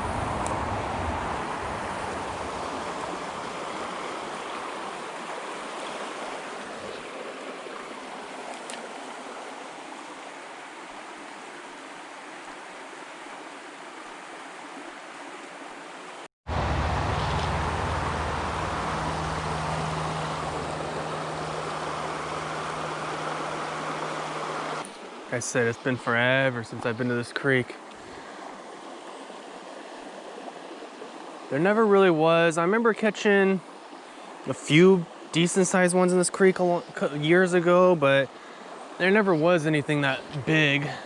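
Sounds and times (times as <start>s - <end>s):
low hum: 0.0s - 3.5s, 16.5s - 24.8s
creek water rushing over rocks: 0.0s - 16.3s, 17.2s - 41.0s.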